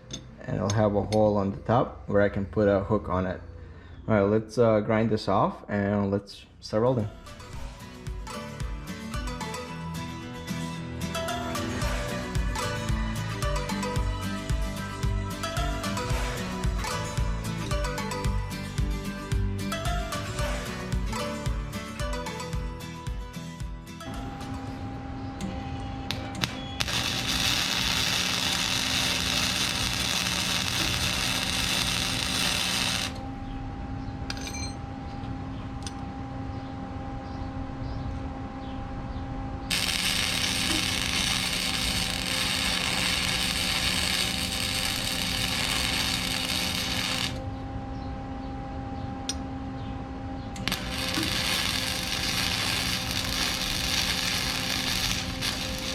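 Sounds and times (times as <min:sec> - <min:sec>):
machine hum: 0:24.0 - 0:55.9
welding arc crackle: 0:26.1 - 0:33.2, 0:39.7 - 0:47.4, 0:50.6 - 0:55.9.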